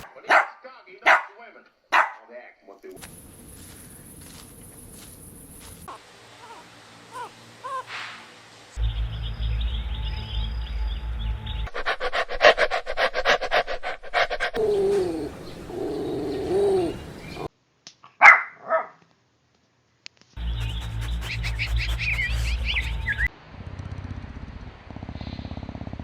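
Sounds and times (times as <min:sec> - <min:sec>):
puppies whining: 0:11.7 - 0:17.5, 0:20.4 - 0:23.3
puppies yapping: 0:11.7 - 0:17.5, 0:20.4 - 0:23.3
puppy yelping: 0:11.7 - 0:17.5, 0:20.5 - 0:23.3.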